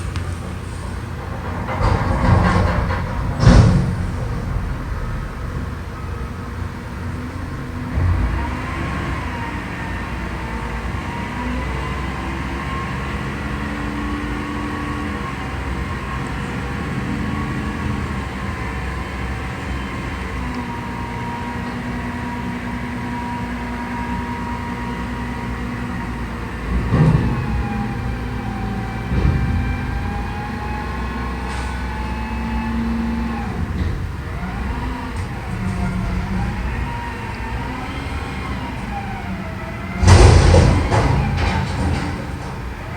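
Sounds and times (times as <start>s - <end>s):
loud bangs: 0.0s - 8.7s, 33.0s - 42.9s
whining tones: 0.0s - 9.6s, 32.2s - 42.9s
truck diesel engine running: 0.0s - 42.9s.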